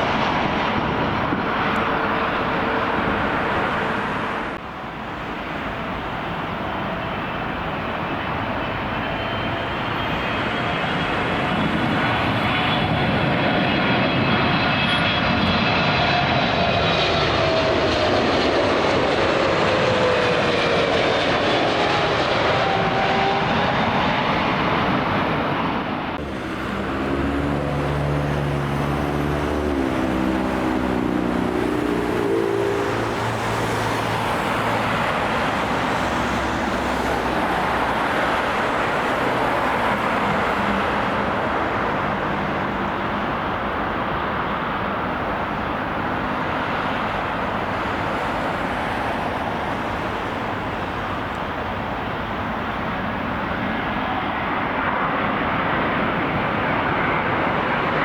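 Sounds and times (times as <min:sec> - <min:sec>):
jet engines roaring: 0:00.0 - 0:58.0
low engine drone: 0:25.4 - 0:52.2.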